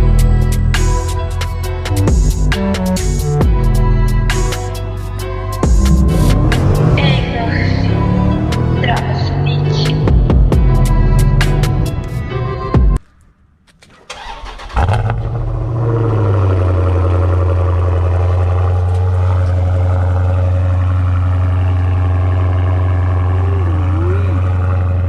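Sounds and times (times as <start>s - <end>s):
vee eight engine revving and idling: 0.0s - 12.6s, 14.1s - 25.0s
starter motor cranking: 13.9s - 15.6s.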